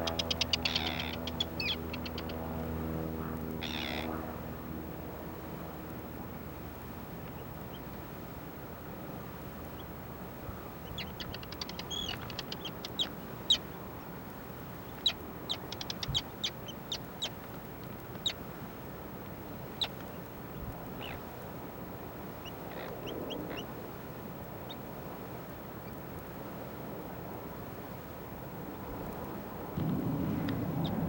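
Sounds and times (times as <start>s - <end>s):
small bird chipping: 0.0s - 2.4s, 10.6s - 14.1s, 14.8s - 17.4s
steady background hiss: 0.0s - 31.0s.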